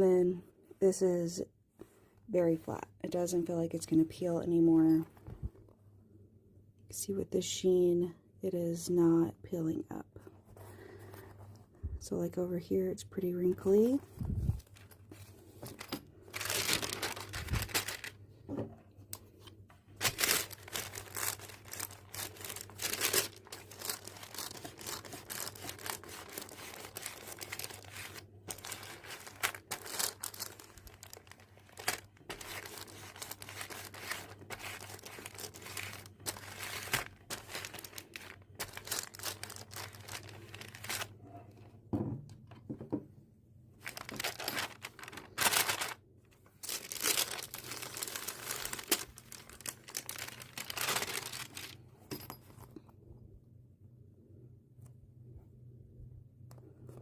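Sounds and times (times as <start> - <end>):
paper crinkling and rustling: 13.8 - 41.5, 43.8 - 51.8.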